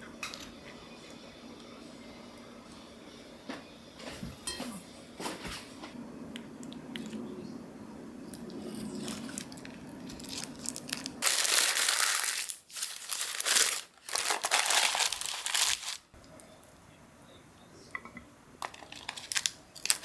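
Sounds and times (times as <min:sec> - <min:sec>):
low steady hum: 0:00.0 - 0:20.0
packaging being crinkled: 0:08.7 - 0:16.1, 0:18.6 - 0:20.0.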